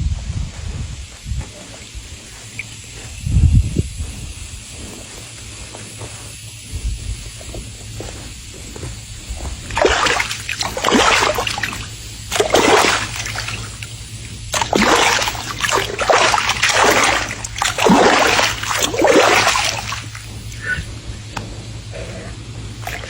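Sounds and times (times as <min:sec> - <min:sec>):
swimming animal splashing water: 0:09.3 - 0:23.0.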